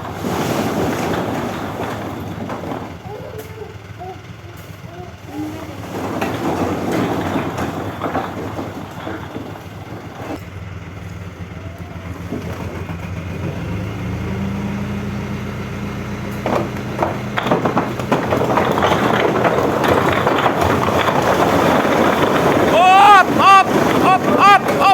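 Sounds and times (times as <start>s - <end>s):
heavy truck engine revving: 0.0s - 24.9s
knocks: 5.5s - 10.4s, 16.4s - 24.9s.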